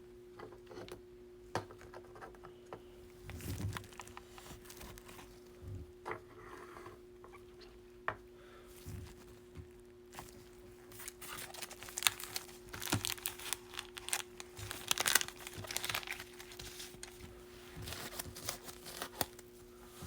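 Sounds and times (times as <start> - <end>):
foil wrapper crinkling and tearing: 3.3 - 5.4, 10.1 - 19.6.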